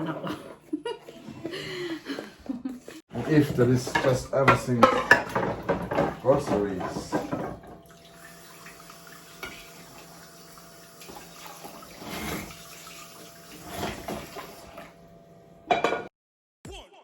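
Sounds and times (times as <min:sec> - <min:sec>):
tap water running into sink: 0:03.2 - 0:15.0.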